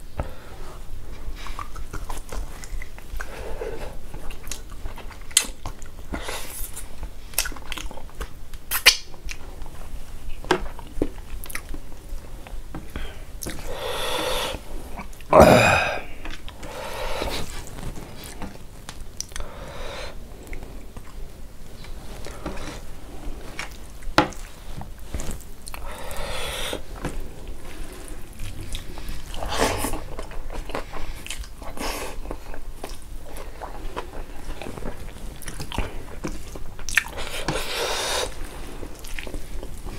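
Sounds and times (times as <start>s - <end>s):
person chewing and lip smacking: 1.3s - 9.4s, 10.7s - 11.8s, 17.3s - 19.5s, 25.2s - 25.9s, 28.3s - 37.7s, 38.8s - 39.9s
wet mouth clicks: 1.4s - 3.3s, 8.6s - 9.4s.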